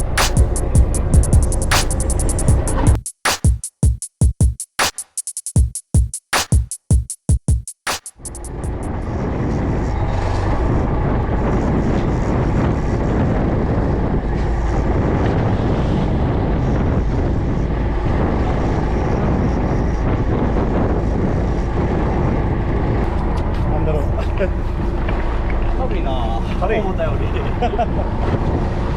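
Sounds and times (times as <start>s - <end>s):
wind on microphone: 8.4s - 25.7s, 27.0s - 28.9s
boat engine drone: 8.5s - 28.9s.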